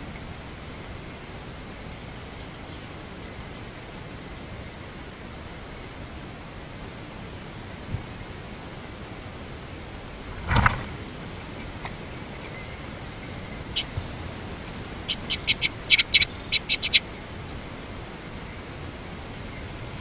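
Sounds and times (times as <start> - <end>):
steady hiss: 0.0 - 20.0
bird chip calls: 11.4 - 14.1, 14.9 - 17.3.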